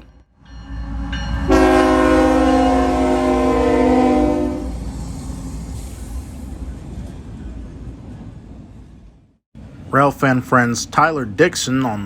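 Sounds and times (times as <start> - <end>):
low rumble of passing train: 0.0 - 12.0
locomotive air horn chord: 1.5 - 4.8.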